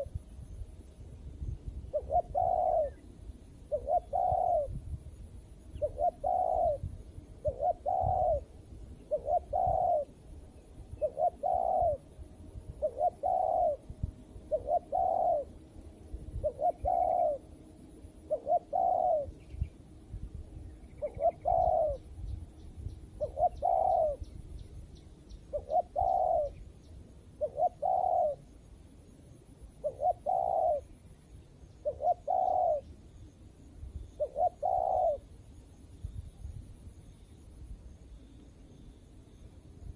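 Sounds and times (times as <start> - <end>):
faint high whine: 0.0 - 39.9
dove cooing: 1.9 - 3.1, 3.7 - 4.8, 5.7 - 10.2, 10.9 - 12.1, 12.7 - 15.6, 16.3 - 19.5, 20.9 - 22.2, 23.2 - 24.3, 25.5 - 26.6, 27.4 - 28.5, 29.8 - 31.0, 31.8 - 32.9, 34.2 - 35.3.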